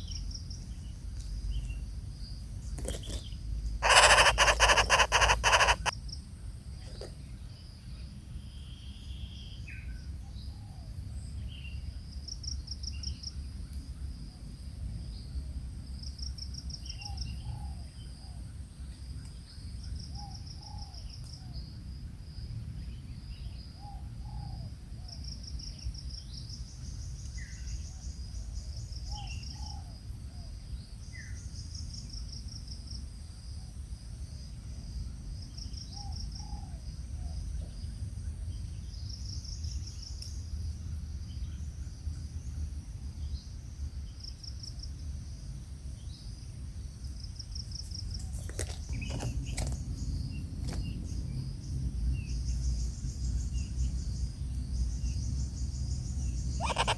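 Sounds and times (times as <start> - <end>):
insects chirping in trills: 0.0 - 56.9
short bird calls: 3.8 - 5.9, 56.4 - 56.9.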